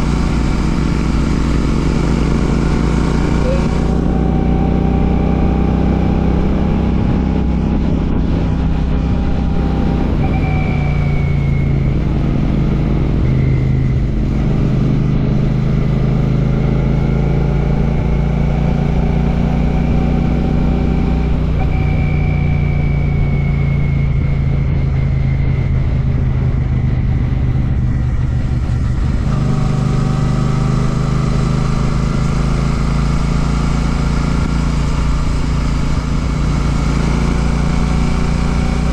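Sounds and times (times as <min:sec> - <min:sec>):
motorcycle engine while riding: 0:00.0 - 0:38.9.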